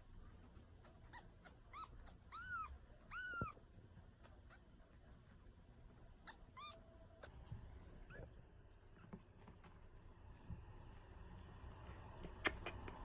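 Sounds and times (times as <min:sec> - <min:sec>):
kitten mewing: 0:00.8 - 0:03.6.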